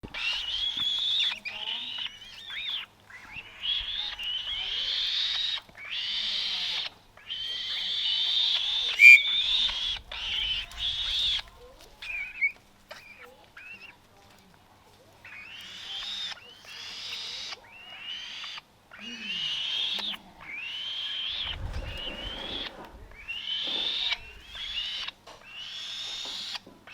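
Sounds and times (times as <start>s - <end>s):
young falcon screeching: 0.2s - 11.4s.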